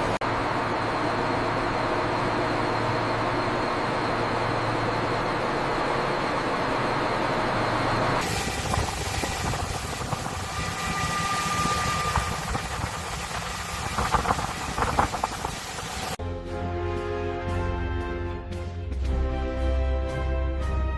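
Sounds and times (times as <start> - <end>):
machinery noise with hiss: 0.0 - 16.2
music with sustained tones: 16.2 - 20.9.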